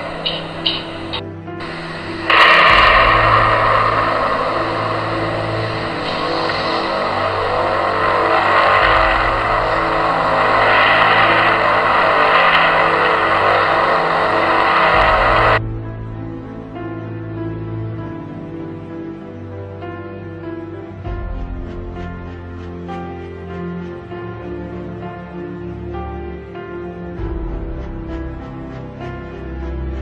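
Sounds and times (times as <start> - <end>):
loud rushing roar: 0.0 - 16.3
low steady drone: 0.0 - 30.0.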